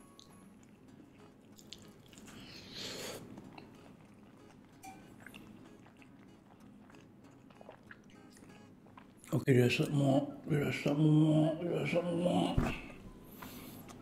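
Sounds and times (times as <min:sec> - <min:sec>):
chewing crispy fried chicken: 0:00.1 - 0:09.9.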